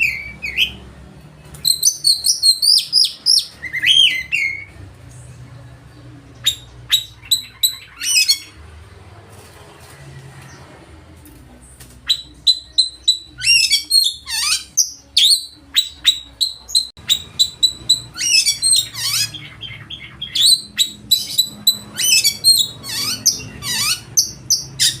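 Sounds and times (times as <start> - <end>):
bird singing loudly: 1.6 - 4.7, 6.4 - 8.6, 12.1 - 25.0.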